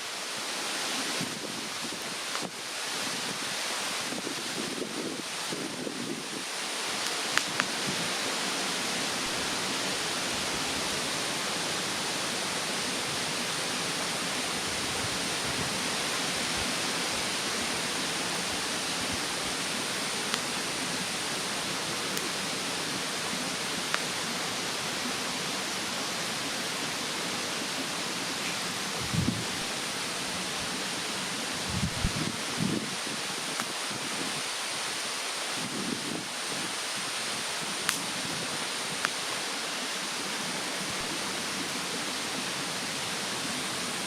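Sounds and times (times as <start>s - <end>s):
mountain stream rushing: 0.0s - 44.0s
wood fire popping: 7.0s - 7.8s, 37.8s - 38.2s.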